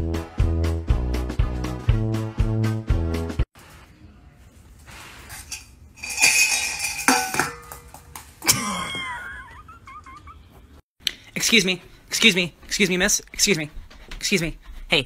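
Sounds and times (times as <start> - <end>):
metal bowls clanking: 5.2 - 8.4.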